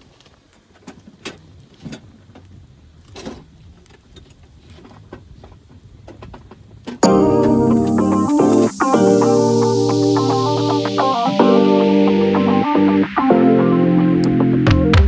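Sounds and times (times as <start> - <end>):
loud electronic music: 7.0 - 15.0.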